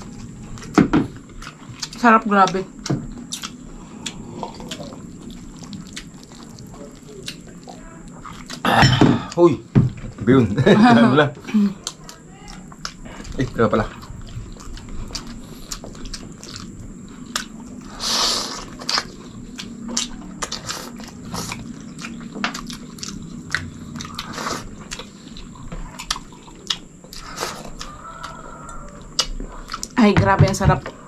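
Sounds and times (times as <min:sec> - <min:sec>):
chewing and lip smacks: 0:00.0 - 0:08.6, 0:11.7 - 0:30.0.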